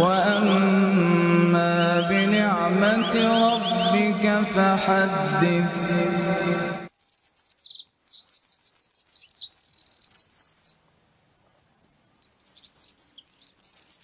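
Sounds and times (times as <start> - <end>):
man reciting chant: 0.0 - 6.9
songbird chirping: 0.0 - 14.0.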